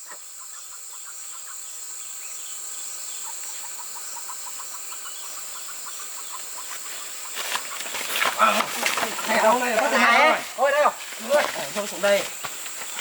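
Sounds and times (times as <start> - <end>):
high insect whine: 0.0 - 13.0
poultry calling: 3.1 - 13.0.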